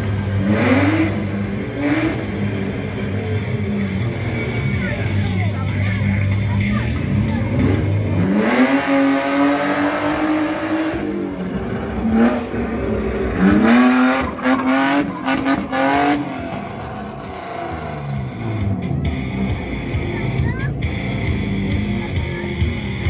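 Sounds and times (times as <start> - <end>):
car engine revving hard: 0.0 - 4.8, 7.0 - 19.7.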